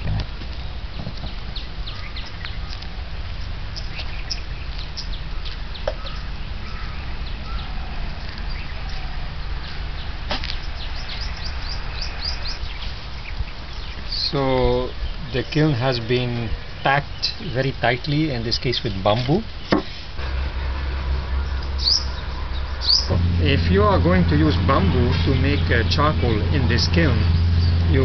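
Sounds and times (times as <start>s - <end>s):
birds chirping: 0.0s - 28.0s
low rumble: 20.2s - 28.0s.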